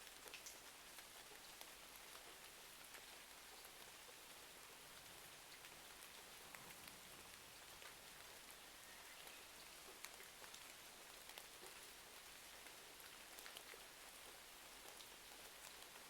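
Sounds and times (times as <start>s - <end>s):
small ticks and pops: 0.0s - 3.8s
faint steady rain: 0.0s - 16.0s.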